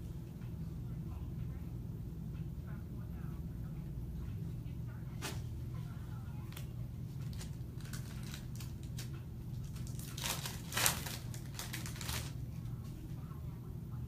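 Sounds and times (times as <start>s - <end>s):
wrapper packaging crinkling: 7.2s - 12.4s.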